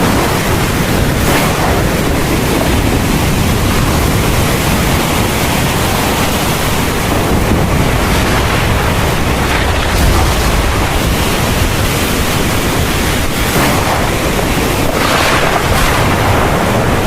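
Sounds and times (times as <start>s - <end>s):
heavy rain pouring: 0.0s - 17.0s
deep low rumble: 7.1s - 17.0s.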